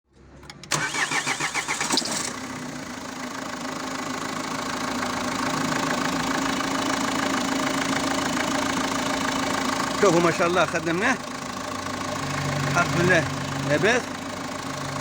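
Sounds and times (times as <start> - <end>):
starter cranking engine: 0.5 - 2.6
diesel engine idling: 0.6 - 15.0.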